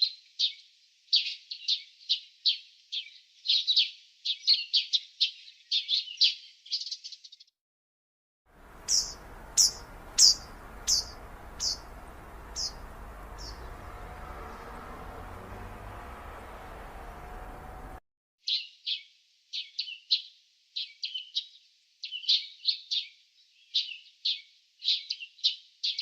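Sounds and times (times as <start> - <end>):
small birds chirping: 0.0 - 7.5, 8.6 - 26.0
background hiss: 8.6 - 18.0
chirps sliding down in pitch: 8.7 - 18.0.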